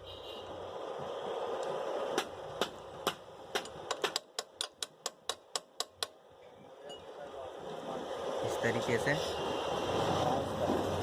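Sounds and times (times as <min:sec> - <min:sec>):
sharp metal taps: 0:02.2 - 0:06.2.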